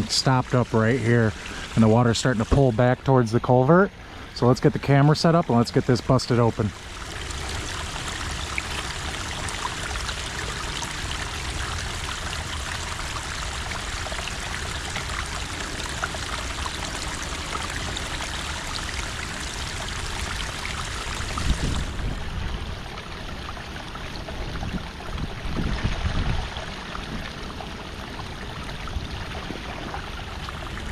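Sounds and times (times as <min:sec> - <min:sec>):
water running: 0:00.0 - 0:03.7, 0:04.4 - 0:22.0.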